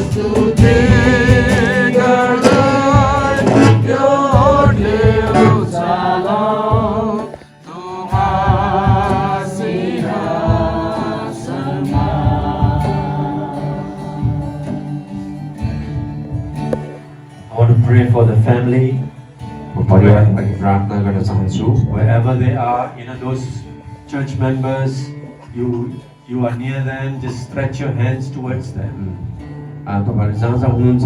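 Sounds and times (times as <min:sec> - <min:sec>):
group singing worship song: 0:00.0 - 0:17.0
instrumental backing with beat: 0:00.0 - 0:17.4.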